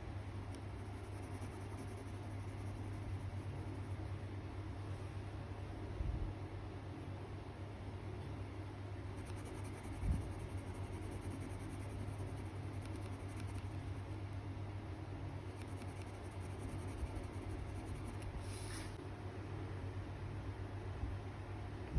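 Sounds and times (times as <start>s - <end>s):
steady low hum: 0.0s - 21.9s
pencil scratching on paper: 0.3s - 4.2s, 9.1s - 14.4s, 15.5s - 19.0s.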